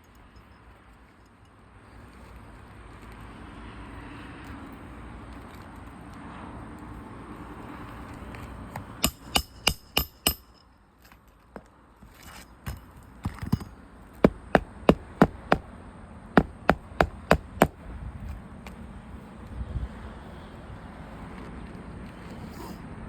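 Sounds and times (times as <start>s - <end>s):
hammer blows on shingle roof: 8.8s - 10.6s, 12.6s - 15.7s, 16.4s - 17.8s.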